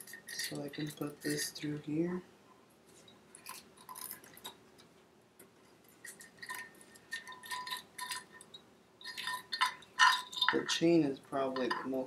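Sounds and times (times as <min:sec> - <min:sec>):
chain links clinking on metal: 0:00.0 - 0:01.5, 0:06.0 - 0:10.8.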